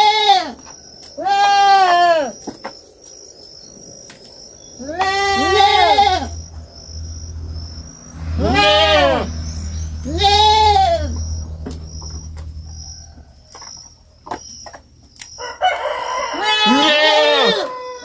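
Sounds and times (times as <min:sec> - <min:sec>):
young goat bleating: 0:00.0 - 0:00.6, 0:01.2 - 0:02.4, 0:04.8 - 0:06.4, 0:08.4 - 0:09.3, 0:10.0 - 0:11.2, 0:16.3 - 0:18.0.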